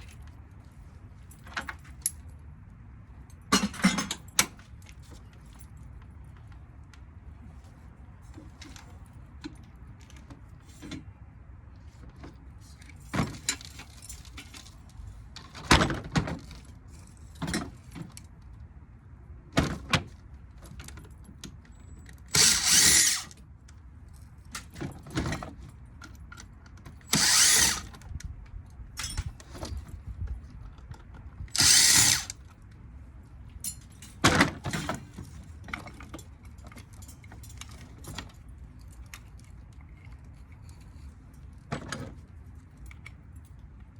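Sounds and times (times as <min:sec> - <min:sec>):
power drill bursts: 0:22.3 - 0:23.3, 0:27.1 - 0:27.9, 0:31.5 - 0:32.4
metal clinks and knocks: 0:29.0 - 0:30.0, 0:33.6 - 0:40.9.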